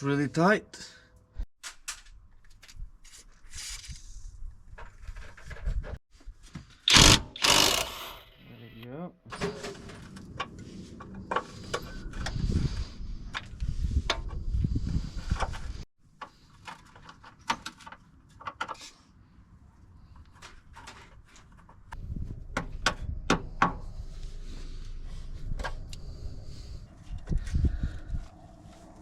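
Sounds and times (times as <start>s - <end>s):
low rumble of handling noise: 22.0s - 29.0s.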